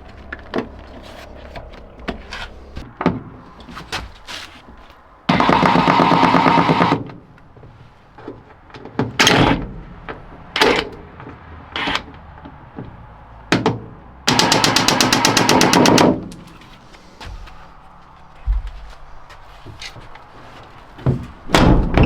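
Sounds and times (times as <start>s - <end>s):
power tool rattling hammer: 5.3s - 7.1s, 13.6s - 16.4s.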